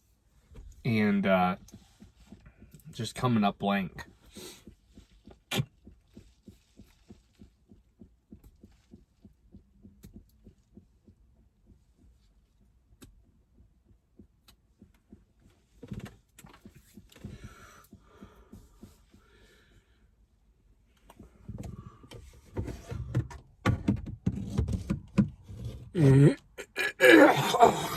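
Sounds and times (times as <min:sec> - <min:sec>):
rain patter on a car: 0:04.1 - 0:10.8.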